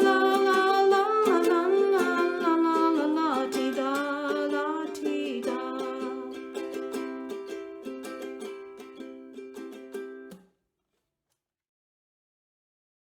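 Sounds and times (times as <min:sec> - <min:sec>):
strummed acoustic string instrument: 0:00.0 - 0:10.4.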